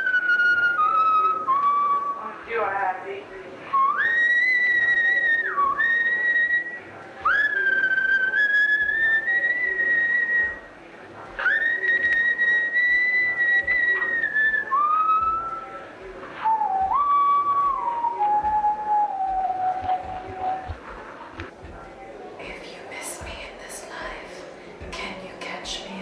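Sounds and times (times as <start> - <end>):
person whistling slow tune: 0.0 - 2.2, 3.8 - 10.6, 11.4 - 15.8, 16.4 - 20.8.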